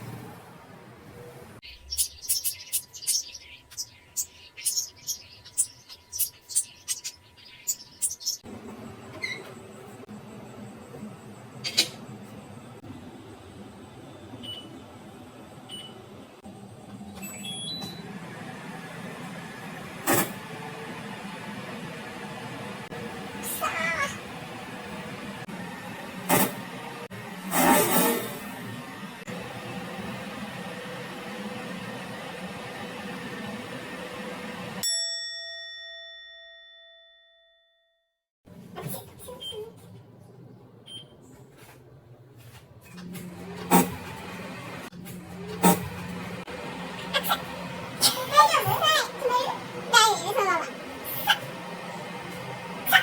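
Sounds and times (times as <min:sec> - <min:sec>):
microwave oven humming: 0:00.0 - 0:36.0, 0:38.5 - 0:53.0
microwave control panel beeps: 0:08.8 - 0:12.3, 0:14.3 - 0:14.9, 0:15.6 - 0:16.2, 0:17.1 - 0:18.2, 0:40.8 - 0:41.3
microwave bell ding: 0:34.8 - 0:38.0.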